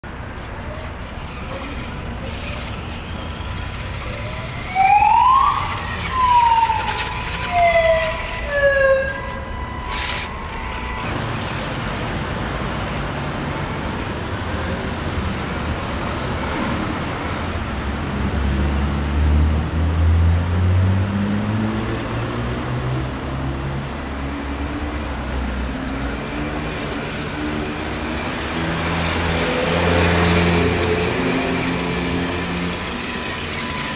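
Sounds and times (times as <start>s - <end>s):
siren-like wail: 3.5s - 11.3s.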